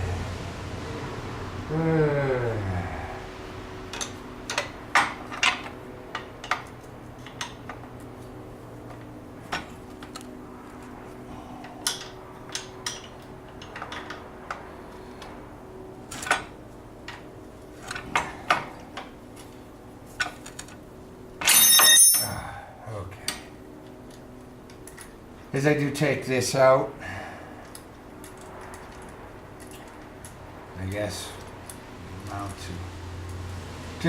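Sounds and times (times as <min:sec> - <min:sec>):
steady low hum: 0:00.0 - 0:34.0
wrench clinking on bolt: 0:21.4 - 0:22.4.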